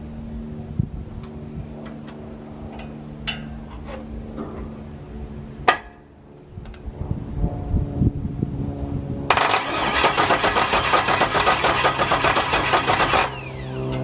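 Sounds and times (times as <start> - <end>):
engine cranking on starter: 9.3 - 14.0.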